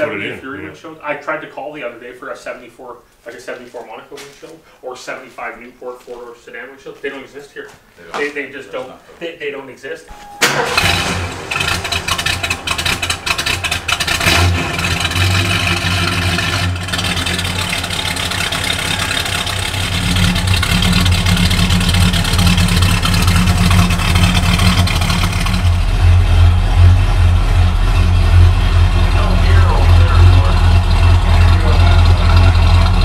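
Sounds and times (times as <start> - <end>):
car engine idling and revving: 10.2 - 33.0.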